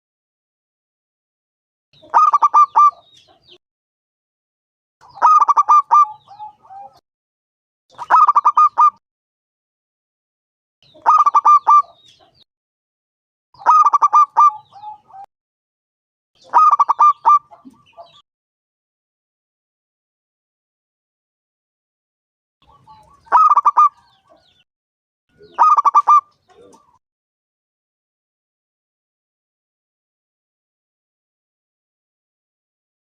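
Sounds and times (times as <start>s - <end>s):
dove cooing: 2.1s - 3.3s, 5.1s - 7.0s, 8.0s - 9.0s, 11.0s - 12.0s, 13.6s - 15.3s, 16.4s - 18.2s, 22.6s - 24.4s, 25.4s - 27.0s.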